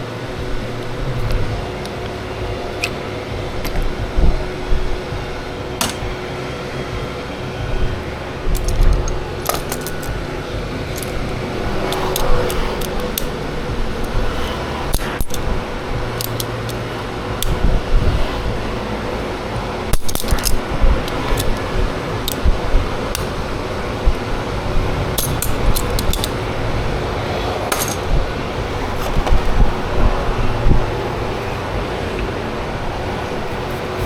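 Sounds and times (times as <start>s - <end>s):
steady low hum: 0.0s - 34.0s
metal tools clinking: 9.5s - 10.1s.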